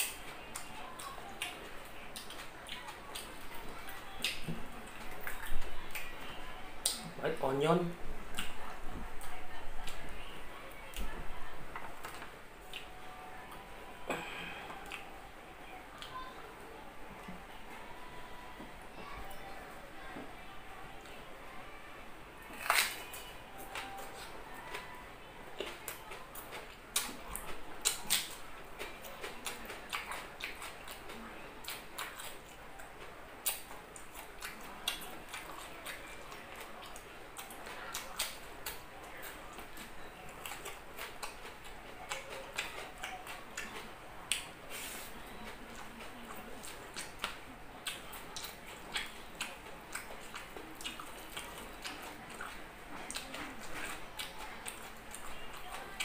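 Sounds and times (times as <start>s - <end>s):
person chewing food: 0.0s - 7.1s, 11.7s - 15.1s, 22.4s - 56.0s.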